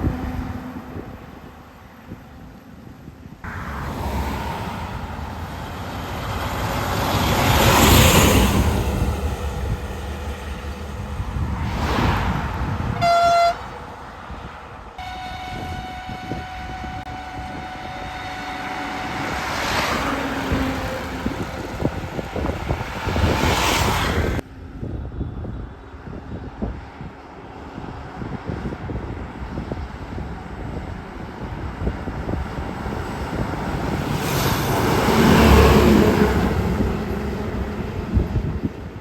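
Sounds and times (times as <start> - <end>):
vehicles rushing past: 2.9 - 24.4, 26.4 - 39.0
vehicle horn blast: 13.0 - 13.7, 15.0 - 20.1.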